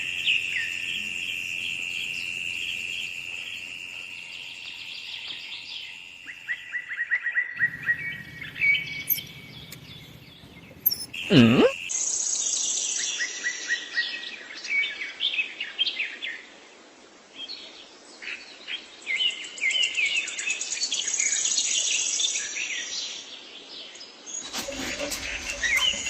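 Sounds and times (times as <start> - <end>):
insect trilling: 0.0 - 6.9, 7.6 - 11.8, 24.3 - 26.0
songbirds chirping: 0.0 - 6.9, 7.5 - 11.9.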